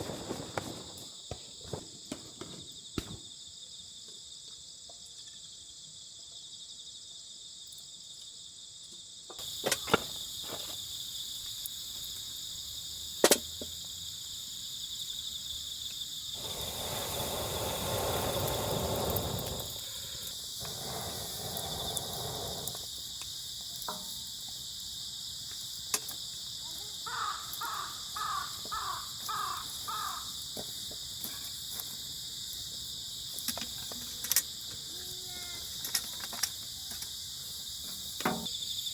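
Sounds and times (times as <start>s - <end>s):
crickets chirring: 0.0s - 38.9s
crow cawing: 27.1s - 30.4s.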